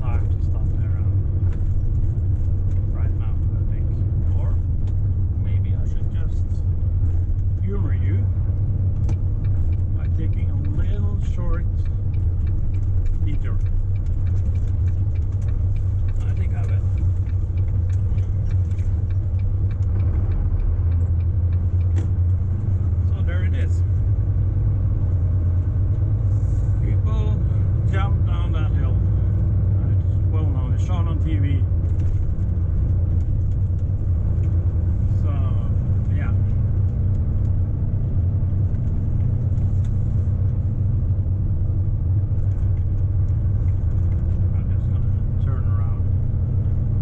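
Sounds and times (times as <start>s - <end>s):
truck engine rumbling: 0.0s - 47.0s
light clicks and rattles: 0.1s - 24.0s, 41.6s - 46.9s.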